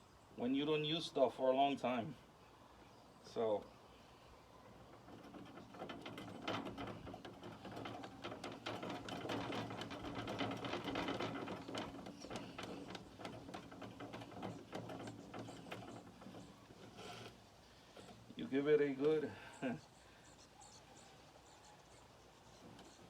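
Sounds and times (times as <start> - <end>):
metal can clicking and rattling: 4.7 - 18.4.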